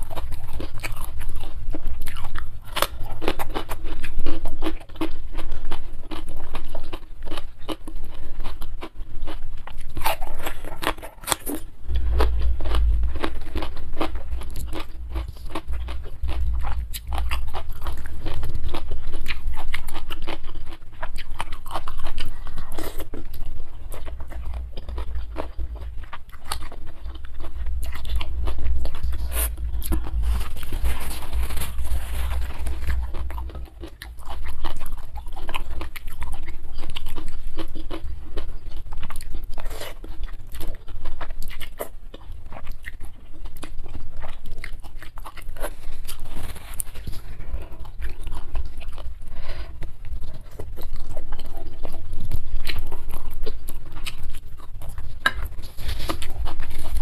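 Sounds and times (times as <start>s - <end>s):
wet chewing and crunching: 0.0s - 57.0s
low rumble: 11.7s - 19.8s, 22.0s - 36.8s.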